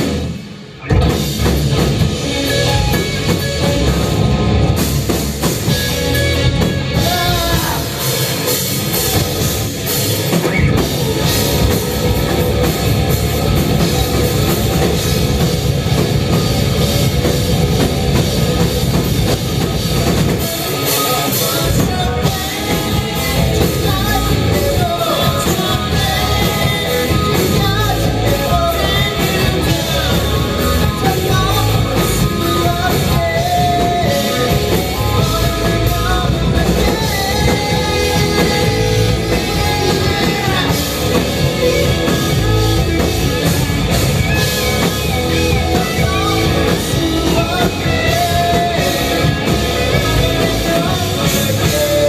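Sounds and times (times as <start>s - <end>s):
drum kit: 0.0s - 52.0s
rock band playing live: 0.0s - 52.0s
person singing: 6.7s - 9.1s, 20.3s - 42.8s, 44.7s - 52.0s.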